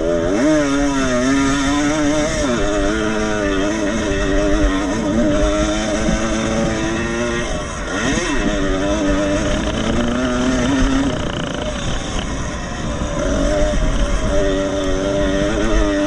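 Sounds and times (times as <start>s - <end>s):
motorcycle engines racing: 0.0s - 16.0s.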